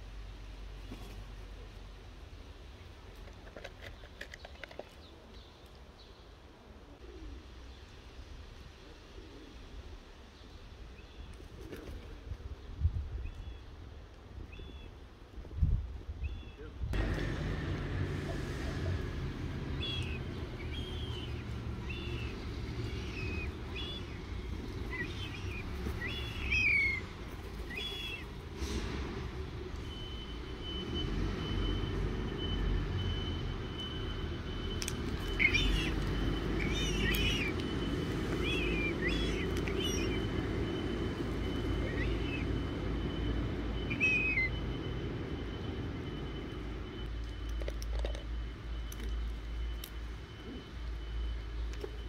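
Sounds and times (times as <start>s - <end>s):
birds chirping: 16.2s - 28.8s, 29.4s - 47.1s
thin whistle-like tone: 38.5s - 47.3s.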